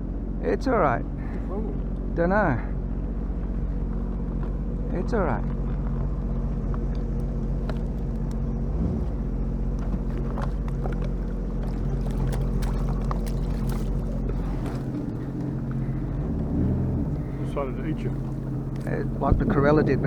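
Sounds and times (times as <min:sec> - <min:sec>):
outboard motor running: 0:00.0 - 0:20.0
faint clicks and knocks: 0:05.5 - 0:16.1.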